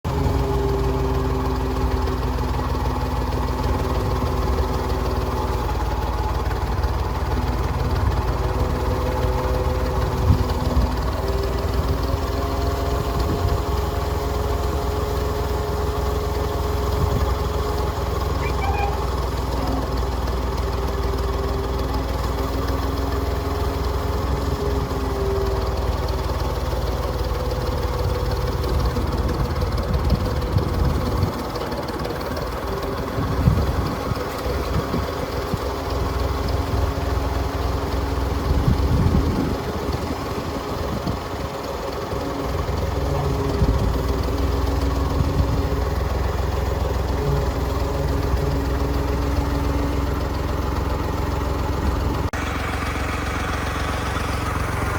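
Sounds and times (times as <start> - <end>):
tractor engine running: 0.0 - 54.9.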